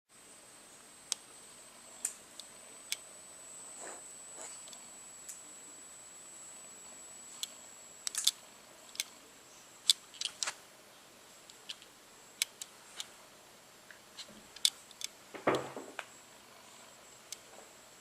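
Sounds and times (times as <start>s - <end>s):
camera clicking: 7.4s - 8.4s.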